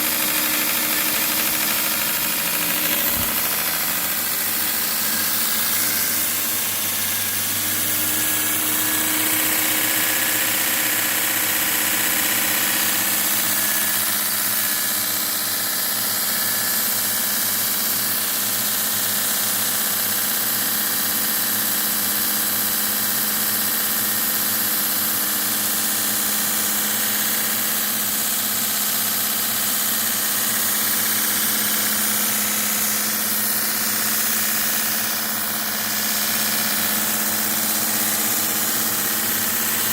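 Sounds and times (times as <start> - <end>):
abrasive belt hissing: 0.0 - 10.6, 30.6 - 39.9
grinder motor humming: 0.0 - 16.9, 27.2 - 39.9.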